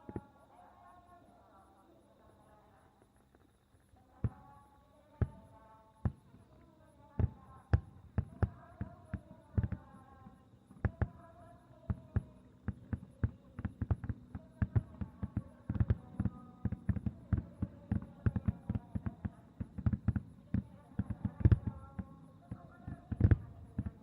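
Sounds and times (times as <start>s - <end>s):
fireworks booming and cracking: 5.2s - 6.5s, 7.2s - 24.0s.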